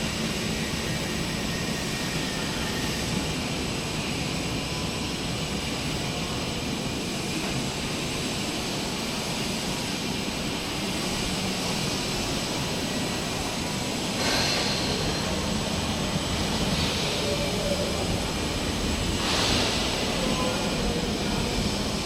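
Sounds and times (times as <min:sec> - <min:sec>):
press brake machine running: 0:12.4 - 0:22.0.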